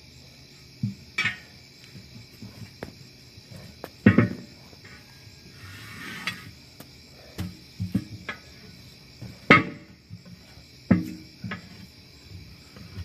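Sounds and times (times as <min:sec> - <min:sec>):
crickets chirring: 0:00.0 - 0:13.0
tools and metal clanking: 0:00.8 - 0:01.6, 0:03.9 - 0:05.1, 0:07.4 - 0:13.0.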